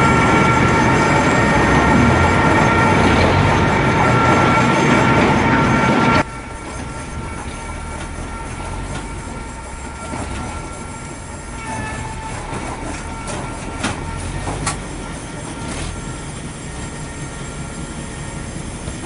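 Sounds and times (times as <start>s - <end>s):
machine drone with high whine: 0.0s - 19.0s.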